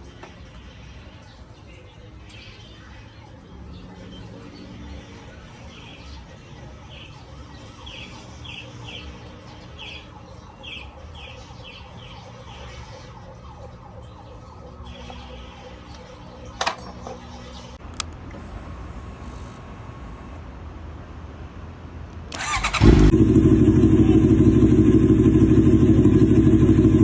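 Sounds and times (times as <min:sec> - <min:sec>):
motorcycle engine idling: 0:22.4 - 0:27.0.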